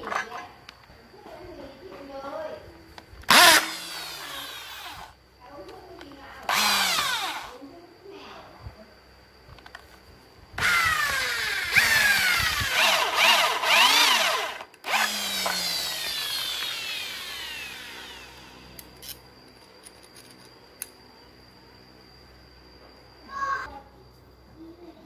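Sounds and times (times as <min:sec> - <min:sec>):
electric drill drilling metal: 0:03.3 - 0:05.1, 0:06.5 - 0:07.5, 0:10.6 - 0:18.8.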